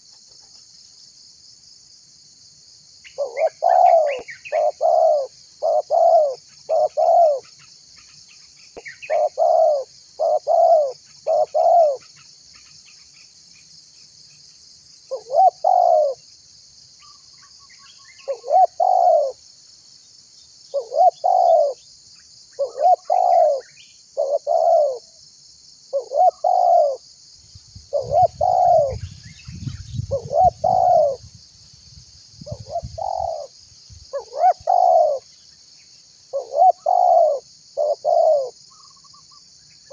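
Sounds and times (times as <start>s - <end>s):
dove cooing: 3.2s - 7.5s, 8.8s - 12.1s, 15.1s - 16.2s, 18.2s - 19.4s, 20.7s - 21.8s, 22.6s - 25.1s, 25.9s - 27.0s, 27.9s - 31.3s, 32.4s - 33.5s, 34.1s - 35.2s, 36.3s - 39.0s
high-pitched hiss: 26.4s - 39.9s.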